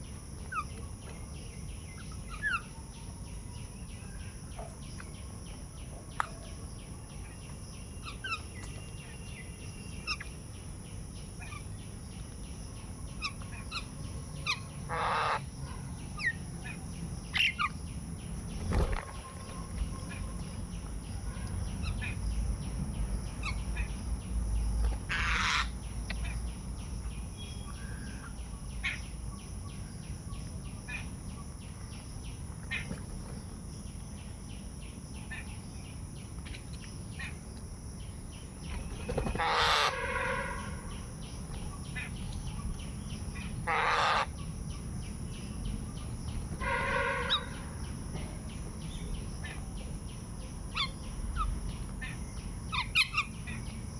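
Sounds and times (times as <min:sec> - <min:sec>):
birds chirping: 0:17.3 - 0:37.4, 0:38.0 - 0:50.2
harsh bird calls: 0:24.8 - 0:26.4, 0:38.4 - 0:44.6, 0:45.6 - 0:48.0.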